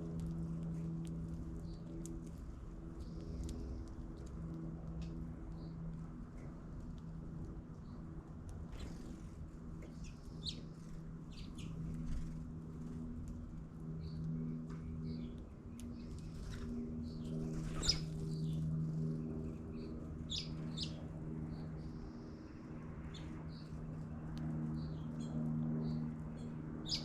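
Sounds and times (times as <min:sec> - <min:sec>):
low steady hum: 0:00.0 - 0:27.0
small birds chirping: 0:08.7 - 0:12.5, 0:13.9 - 0:27.0.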